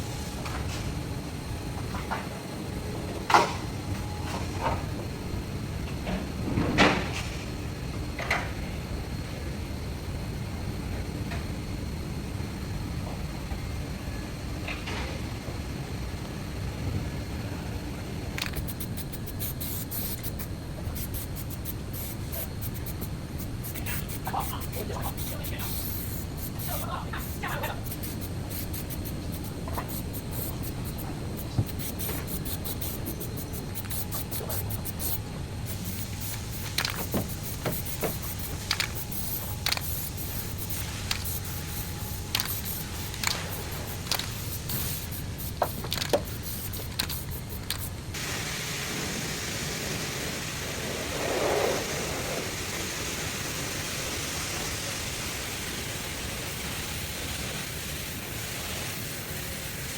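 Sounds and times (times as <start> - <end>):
steady hiss: 14.0 - 59.9.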